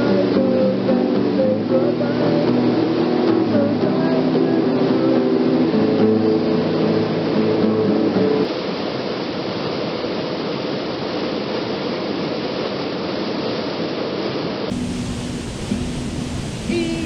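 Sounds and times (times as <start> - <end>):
waterfall rushing: 14.2 - 17.0
faint steady tone: 14.7 - 17.0.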